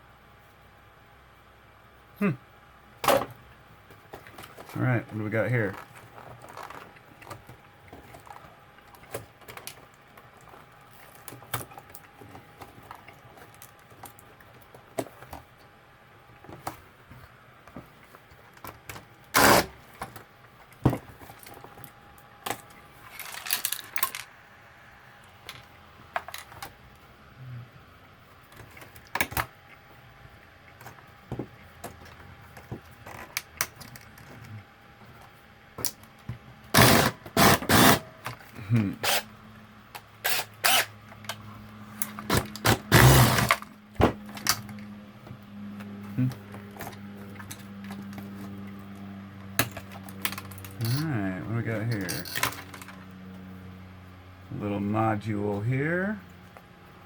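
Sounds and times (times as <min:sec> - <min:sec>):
plastic and metal parts clattering: 0:05.4 - 0:15.5, 0:17.8 - 0:24.3, 0:25.5 - 0:26.8, 0:42.0 - 0:44.8, 0:49.6 - 0:51.1, 0:51.9 - 0:53.0.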